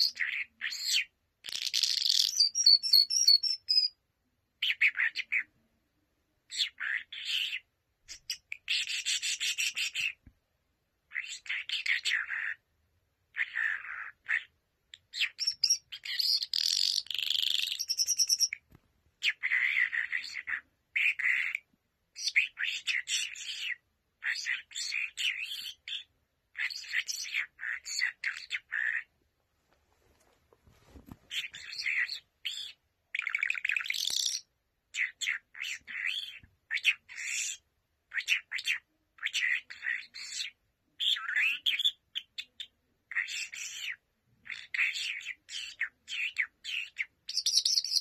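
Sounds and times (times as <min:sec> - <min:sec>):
birds chirping and squawking: 0:13.3 - 0:18.6, 0:19.2 - 0:21.6, 0:22.2 - 0:29.1, 0:31.3 - 0:48.0.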